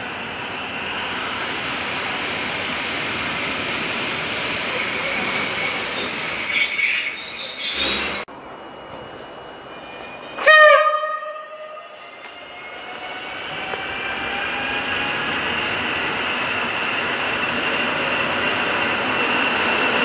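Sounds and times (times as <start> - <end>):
train running noise: 0.0 - 20.0
high squeal: 3.9 - 10.4
train horn blast: 10.4 - 12.0.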